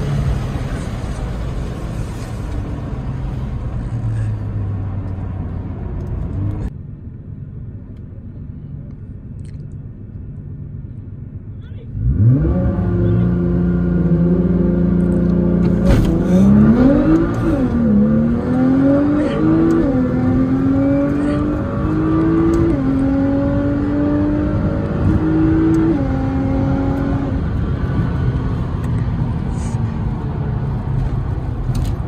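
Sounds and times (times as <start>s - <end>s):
car engine revving and accelerating: 11.9s - 32.0s.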